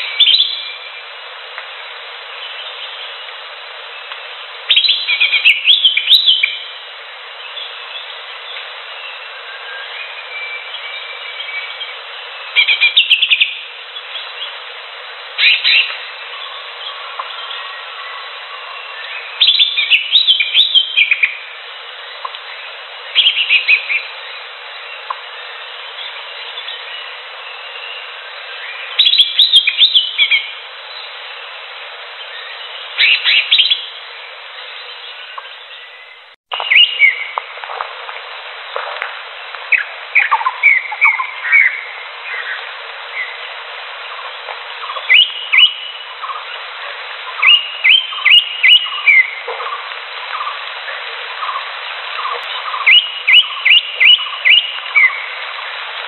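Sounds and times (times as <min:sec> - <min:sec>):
bird whistled song: 0:00.0 - 0:00.9, 0:04.7 - 0:06.7, 0:07.5 - 0:14.5, 0:15.4 - 0:21.4, 0:23.1 - 0:31.1, 0:32.3 - 0:33.9, 0:34.6 - 0:37.4, 0:39.7 - 0:42.6, 0:44.8 - 0:46.4, 0:47.4 - 0:49.4, 0:52.5 - 0:55.3
steady hiss: 0:00.0 - 0:56.0.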